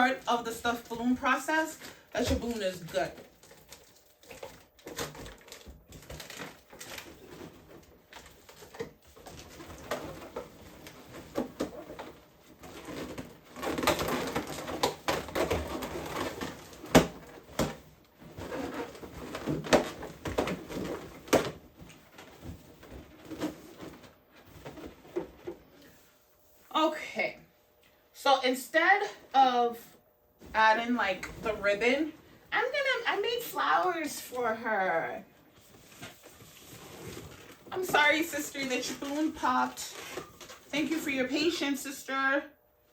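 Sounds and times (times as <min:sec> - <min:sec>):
balloons squeaking and rubbing: 0:00.0 - 0:17.6, 0:18.2 - 0:21.3.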